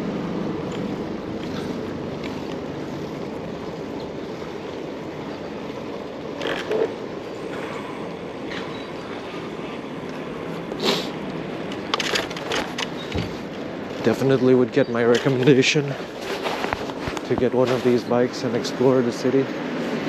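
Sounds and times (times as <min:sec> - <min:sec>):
bicycle rolling noise: 0:00.0 - 0:20.0
bicycle rattles: 0:00.6 - 0:07.8, 0:11.6 - 0:18.4.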